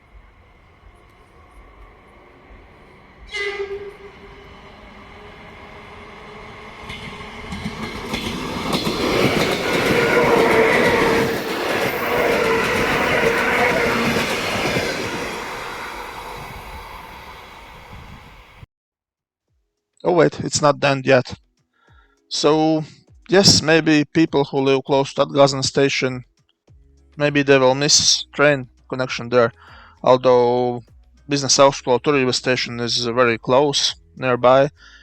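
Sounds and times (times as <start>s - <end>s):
wheels clattering on rails: 0.0s - 16.5s
train horn blast: 0.0s - 16.8s
train passing with loud rumble: 0.0s - 18.7s.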